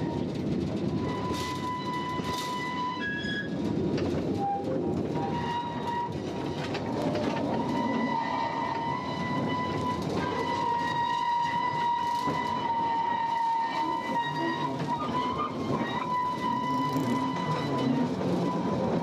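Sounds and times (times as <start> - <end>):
train wheels rumbling: 0.0 - 19.0.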